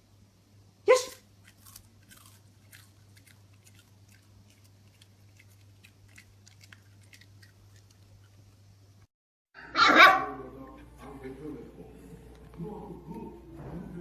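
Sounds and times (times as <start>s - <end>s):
puppy chewing: 1.2s - 9.1s.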